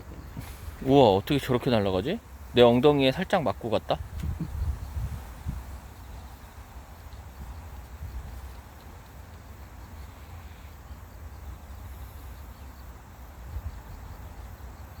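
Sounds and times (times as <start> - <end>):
wind rumbling on microphone: 0.0 - 9.2, 13.3 - 14.8
faint insects chirping: 0.0 - 15.0.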